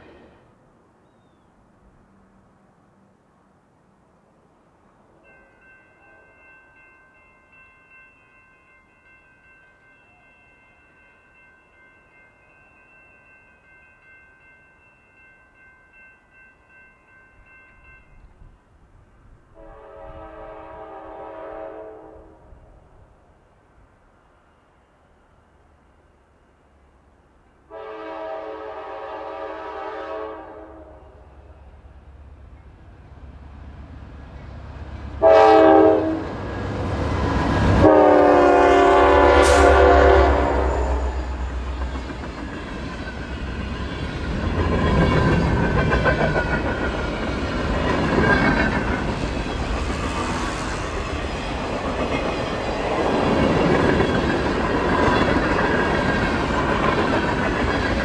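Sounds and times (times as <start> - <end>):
train horn blasts: 19.5 - 22.7, 27.7 - 31.5, 35.2 - 36.4, 37.7 - 41.6.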